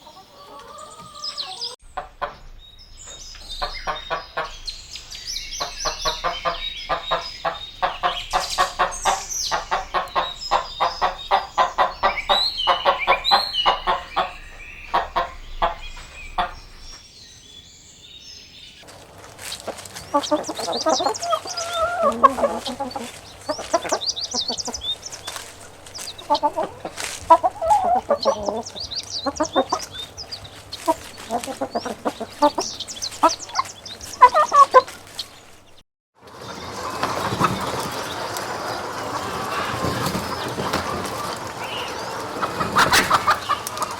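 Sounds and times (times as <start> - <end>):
chickens clucking: 0.0 - 17.0, 18.8 - 43.9
high chirping: 2.5 - 18.9, 20.1 - 35.8.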